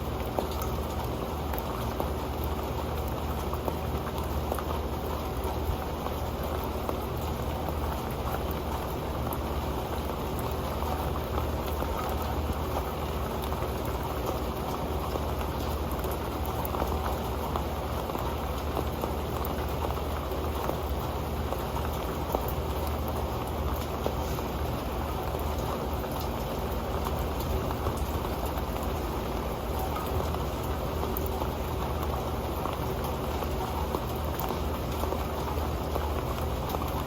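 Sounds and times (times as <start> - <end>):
rain falling on a metal pan: 0.0 - 37.0.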